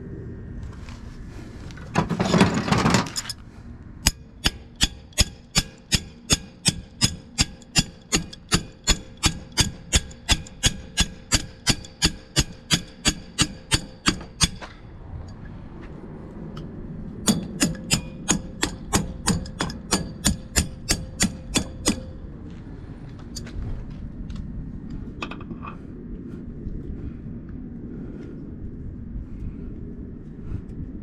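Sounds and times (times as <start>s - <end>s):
hammer blows on metal: 4.0s - 14.7s, 17.3s - 22.2s.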